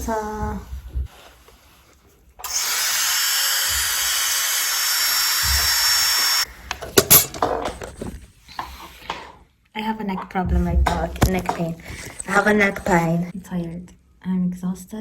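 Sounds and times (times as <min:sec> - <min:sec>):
dental drill whine: 0:02.4 - 0:06.5.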